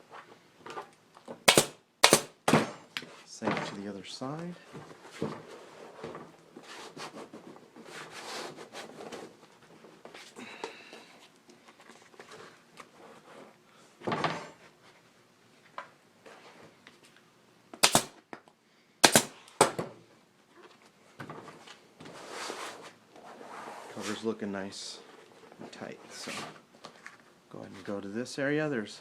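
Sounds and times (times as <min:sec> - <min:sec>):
staple gun shots: 0:01.5 - 0:02.4, 0:17.8 - 0:18.2, 0:19.0 - 0:19.8.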